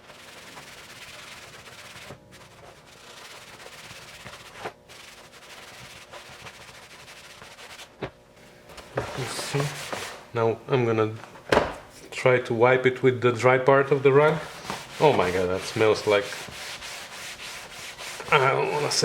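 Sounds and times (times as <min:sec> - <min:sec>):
cloth rag rubbing plastic: 0:00.0 - 0:08.1, 0:08.9 - 0:10.3, 0:13.8 - 0:19.0.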